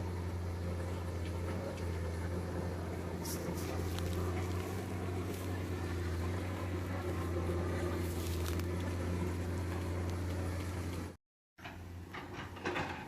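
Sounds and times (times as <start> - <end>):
excavator diesel engine running: 0.0 - 13.0
faint metal knocks and clanks: 9.6 - 13.0.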